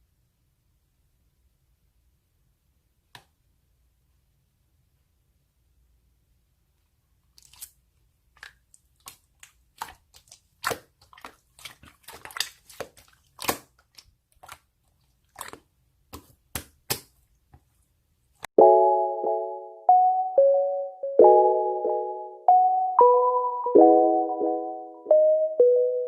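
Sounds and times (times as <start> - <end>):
slime clicking and popping: 8.4 - 14.7
piano-like jingle: 18.6 - 26.0.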